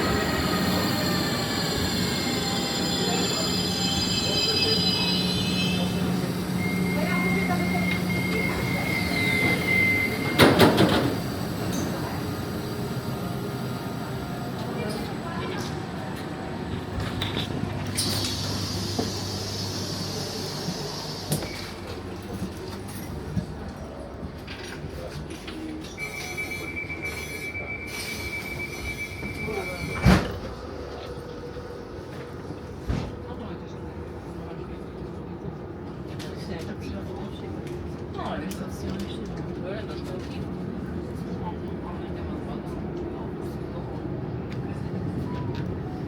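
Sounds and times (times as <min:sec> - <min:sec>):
train high whine: 0:00.0 - 0:24.2
train low rumble: 0:00.0 - 0:46.0
train rattle and clunk: 0:04.5 - 0:26.4, 0:28.0 - 0:33.6.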